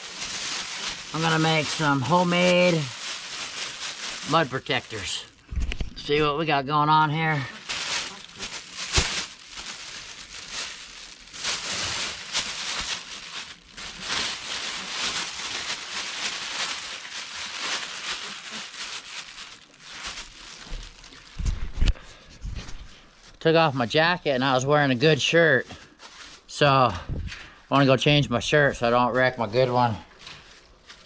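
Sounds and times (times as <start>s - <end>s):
plastic bags crinkling: 0.0s - 6.2s, 7.2s - 21.8s, 25.7s - 26.5s, 29.1s - 31.0s.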